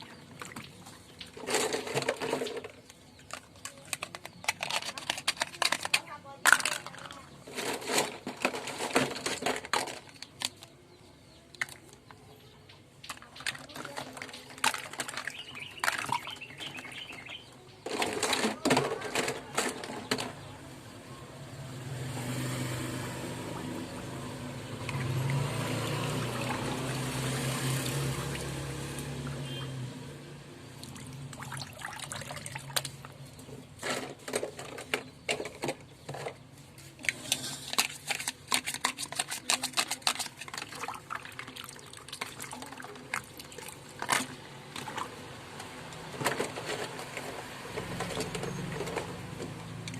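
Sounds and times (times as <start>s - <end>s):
plastic toys clattering: 0.0s - 12.3s, 12.9s - 20.7s, 31.4s - 49.9s
water running: 23.2s - 29.7s.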